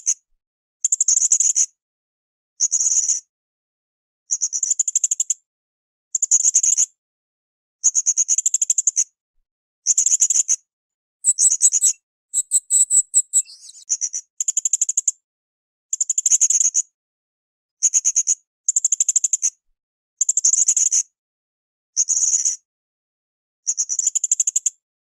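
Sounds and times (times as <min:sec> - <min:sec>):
high spaced bird notes: 0:11.3 - 0:13.8
parrot chattering calls: 0:11.3 - 0:13.8.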